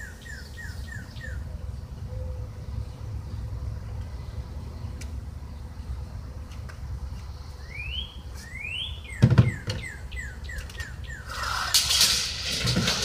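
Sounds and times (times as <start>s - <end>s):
songbird whistling: 0.0s - 1.4s, 7.6s - 11.8s.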